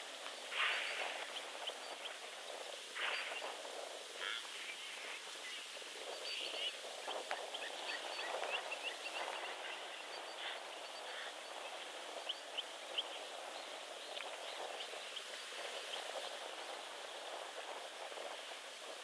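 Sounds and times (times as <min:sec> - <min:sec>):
outdoor background hiss: 0:00.0 - 0:19.0
birds chirping: 0:00.2 - 0:17.4.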